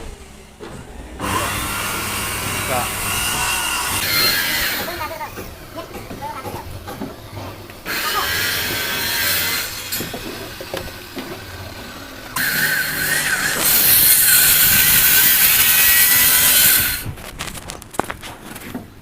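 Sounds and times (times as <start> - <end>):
power tool cutting wood: 1.1 - 5.5, 7.3 - 17.1.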